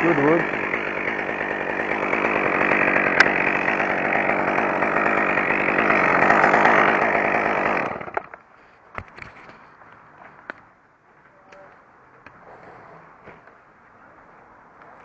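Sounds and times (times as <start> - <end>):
chainsaw engine running: 0.0 - 8.3.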